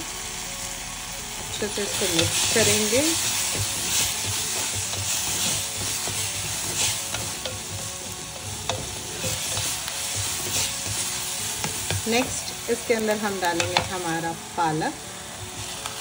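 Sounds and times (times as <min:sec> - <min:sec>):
onions sizzling in hot oil: 0:00.0 - 0:16.0
wooden spatula scraping pot: 0:01.6 - 0:14.2.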